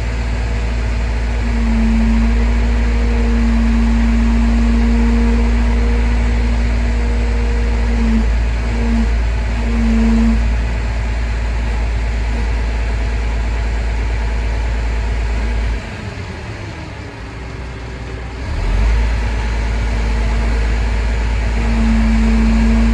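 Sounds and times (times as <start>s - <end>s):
heavy vehicle engine humming: 0.0s - 22.9s
held tone: 0.5s - 10.8s, 19.9s - 22.9s.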